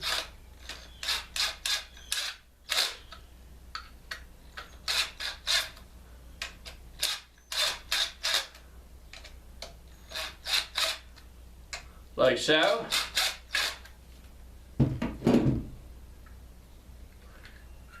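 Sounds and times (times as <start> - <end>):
screws clicking and scraping: 0.0 - 5.8, 6.4 - 11.3, 12.6 - 13.9.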